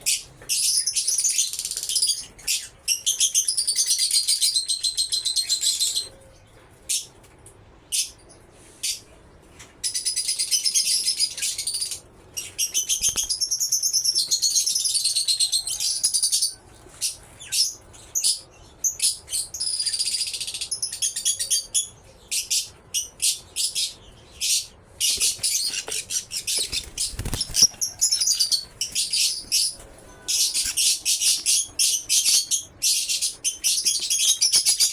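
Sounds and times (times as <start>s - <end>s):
lovebirds chattering: 12.4s - 14.2s, 21.6s - 34.9s.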